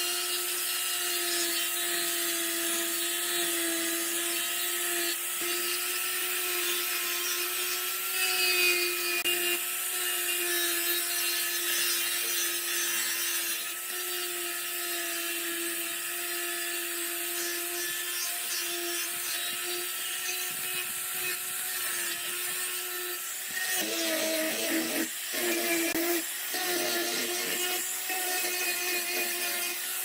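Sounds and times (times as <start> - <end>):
power tool sanding wood: 0.0 - 30.0.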